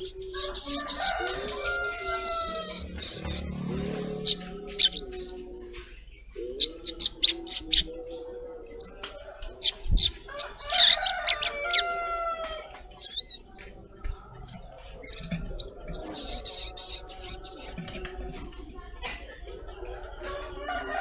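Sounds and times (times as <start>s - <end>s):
bird rasping chatter: 0.0s - 5.3s, 13.0s - 13.4s, 14.5s - 18.0s
bird calling with sharp chirps: 13.0s - 13.4s.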